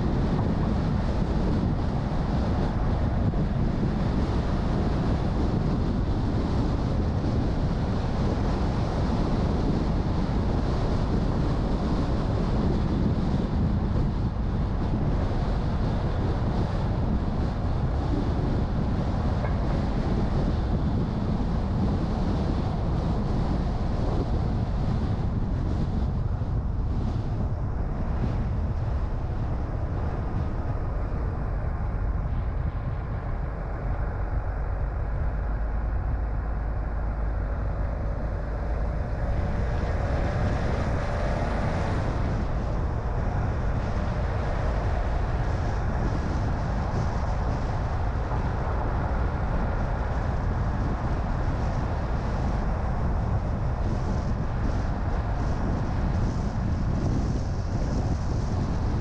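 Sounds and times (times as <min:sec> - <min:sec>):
road and wind noise: 0:00.0 - 0:59.0
engine whine rising in pitch: 0:29.8 - 0:50.1.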